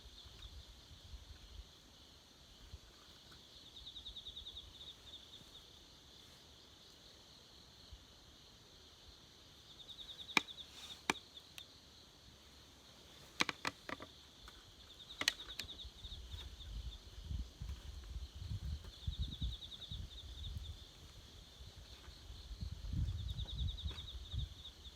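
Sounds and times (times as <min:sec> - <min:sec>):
high insect hum: 0:00.0 - 0:24.9
insects trilling in bursts: 0:00.0 - 0:24.9
sharp clicks: 0:15.2 - 0:15.8.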